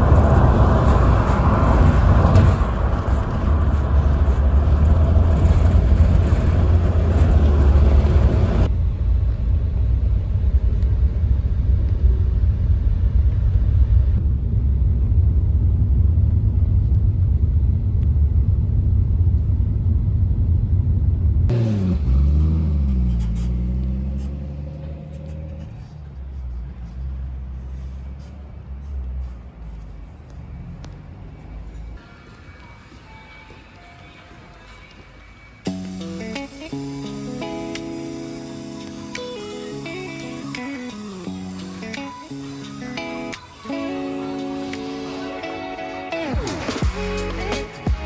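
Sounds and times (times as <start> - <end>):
car engine rumbling: 0.0 - 32.5, 35.4 - 45.2, 45.8 - 48.0.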